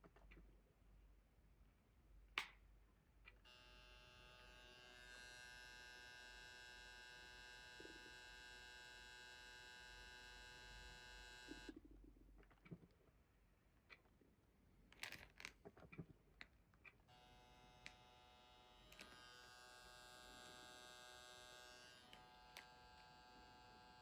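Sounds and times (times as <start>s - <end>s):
click: 2.4s - 2.6s.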